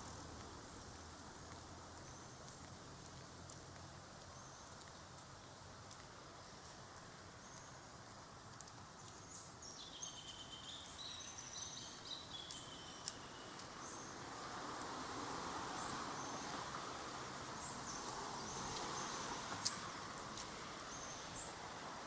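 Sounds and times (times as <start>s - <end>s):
birds chirping: 9.0s - 14.3s.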